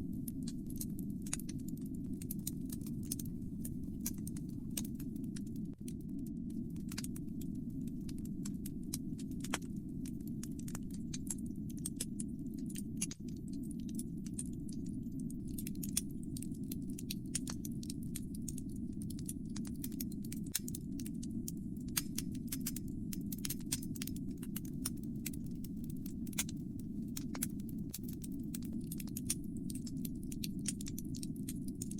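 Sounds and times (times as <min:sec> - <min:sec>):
low fire rumble: 0:00.0 - 0:31.9
wood fire crackling and popping: 0:00.0 - 0:31.9.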